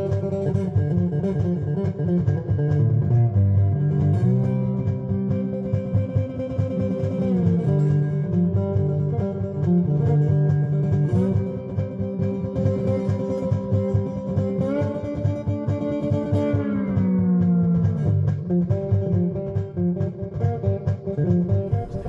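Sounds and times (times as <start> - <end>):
guitar instrumental with beat: 0.0 - 22.0.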